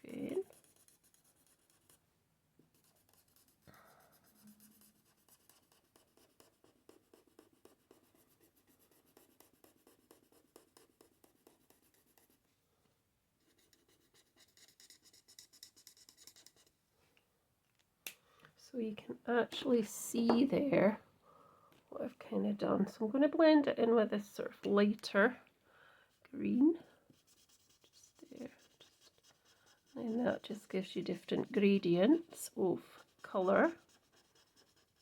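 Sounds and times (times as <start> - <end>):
marker nib scratching on paper: 0.0 - 2.0, 2.7 - 12.4, 13.4 - 16.7, 27.1 - 35.0.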